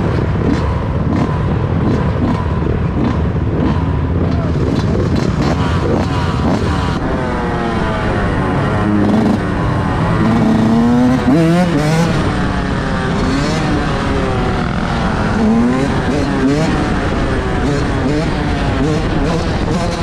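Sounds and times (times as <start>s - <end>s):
vehicle engines revving: 0.0s - 20.0s.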